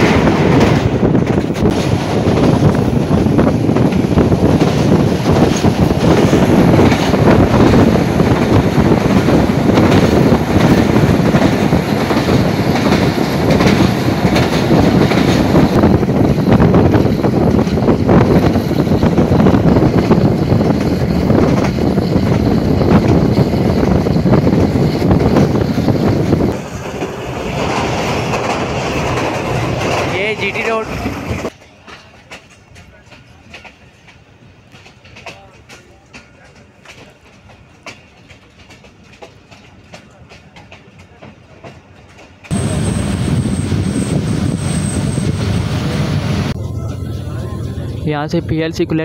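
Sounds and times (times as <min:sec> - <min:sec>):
wheel-on-rail rumble: 0:00.0 - 0:34.0, 0:34.7 - 0:49.0
wheels clicking over rail joints: 0:00.0 - 0:42.6.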